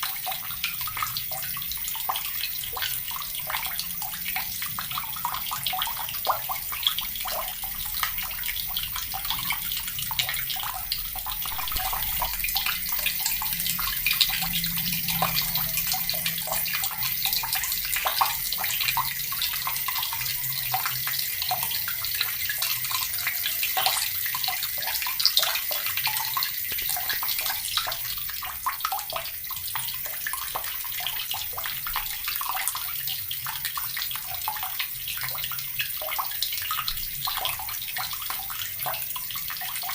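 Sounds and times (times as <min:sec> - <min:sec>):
tap water splashing into basin: 0:15.1 - 0:39.9.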